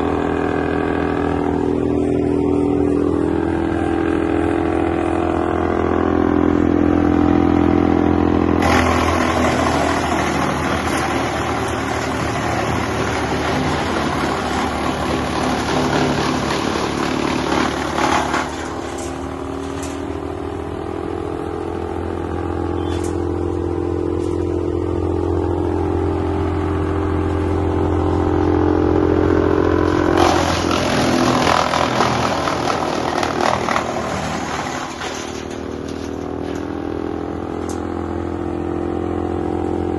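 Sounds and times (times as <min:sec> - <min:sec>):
wood chipper engine running: 0:00.0 - 0:39.9
rough chipping noise: 0:08.5 - 0:20.6, 0:29.8 - 0:36.9.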